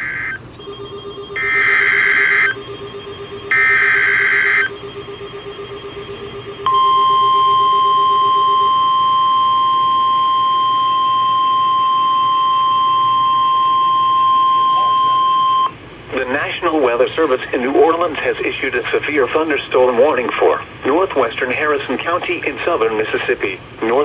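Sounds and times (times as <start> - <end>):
harsh buzzing data bursts: 0.0 - 12.4
steady warning alarm tone: 0.0 - 24.0.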